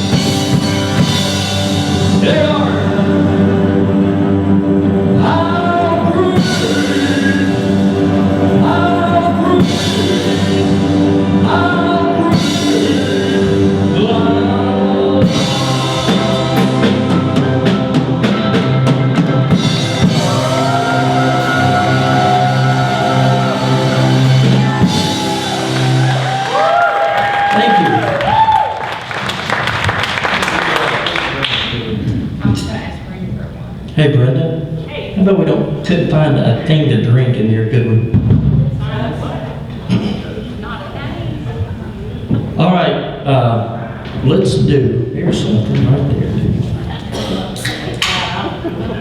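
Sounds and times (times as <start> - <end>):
live band music: 0.0 - 34.0.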